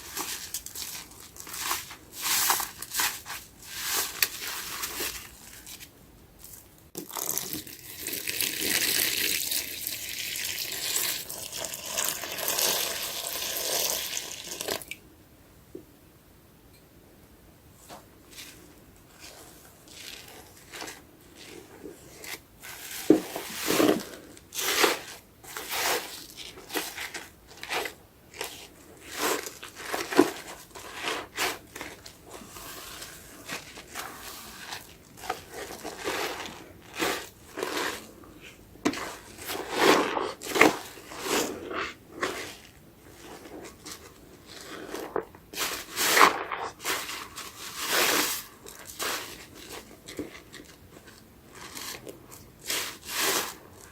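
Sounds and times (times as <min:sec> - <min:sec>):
soapy sponge squelching: 0:19.2 - 0:49.9.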